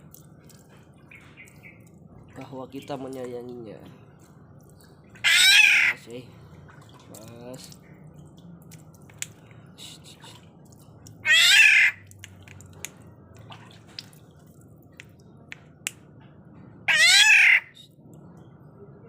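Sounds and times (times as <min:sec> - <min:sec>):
bird giving harsh nasal calls: 0:11.2 - 0:12.0, 0:16.9 - 0:17.8.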